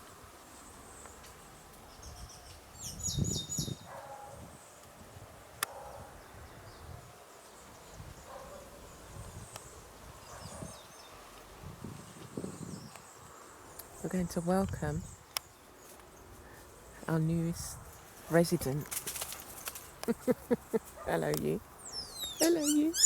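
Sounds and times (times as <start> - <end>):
small bird chirping: 1.9 - 3.9, 20.0 - 23.0.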